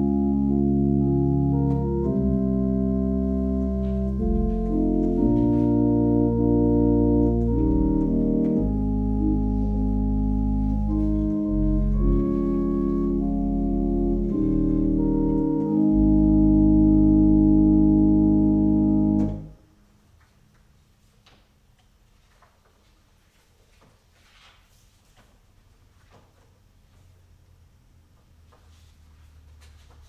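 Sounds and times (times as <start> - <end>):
organ playing sustained chords: 0.0 - 19.7.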